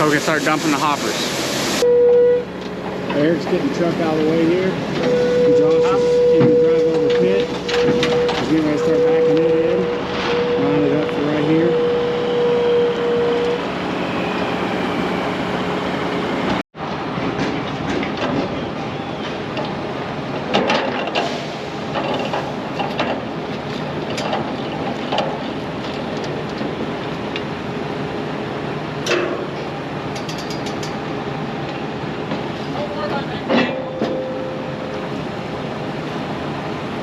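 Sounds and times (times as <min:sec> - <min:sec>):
loose metal clanking: 0:02.7 - 0:10.6.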